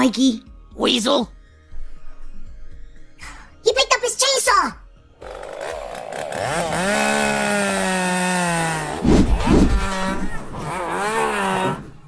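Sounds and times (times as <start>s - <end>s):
chainsaw revving: 5.2s - 12.0s
heavy thumps: 9.0s - 10.9s.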